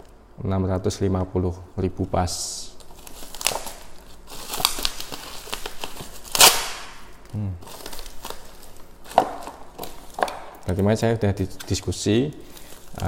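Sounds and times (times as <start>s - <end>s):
plastic packaging crinkling: 2.7s - 13.0s.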